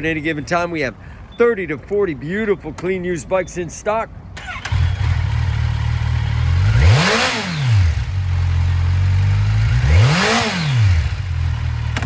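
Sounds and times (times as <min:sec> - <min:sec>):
motorcycle engine idling: 0:04.4 - 0:09.8, 0:10.5 - 0:12.0
motorcycle engine revving: 0:04.4 - 0:12.0.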